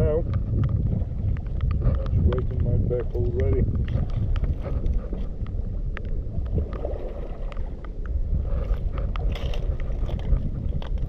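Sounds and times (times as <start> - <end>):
wind rumble on microphone: 0.0 - 11.0
small sharp clicks and crunches: 8.9 - 11.0.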